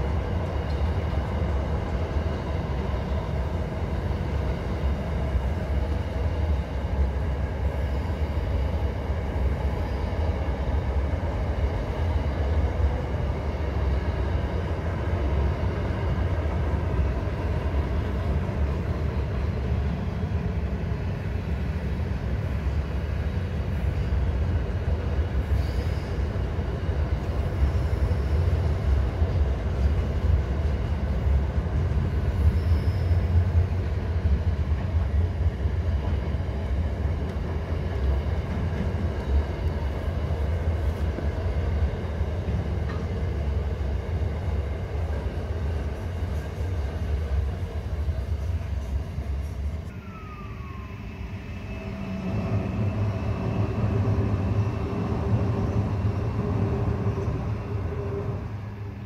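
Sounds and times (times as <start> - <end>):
train wheels rumbling on bridge: 0.0 - 59.0
high wheel squeals: 32.2 - 33.6.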